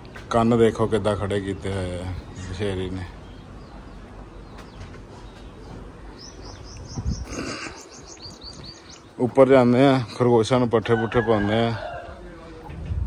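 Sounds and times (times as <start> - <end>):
small bird chirping: 3.2 - 9.2.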